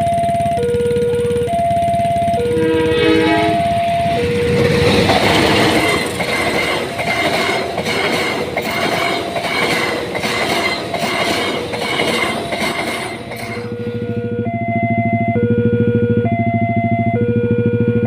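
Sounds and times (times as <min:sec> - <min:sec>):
steady tone: 0:00.0 - 0:07.8
train wheels clacking over rail joints: 0:04.2 - 0:13.9.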